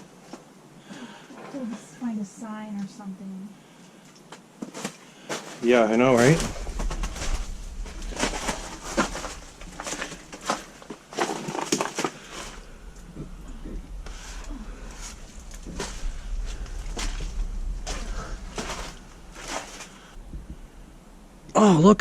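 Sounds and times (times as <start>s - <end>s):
rustling through brush: 4.5s - 21.2s
crunching footsteps: 4.6s - 20.6s.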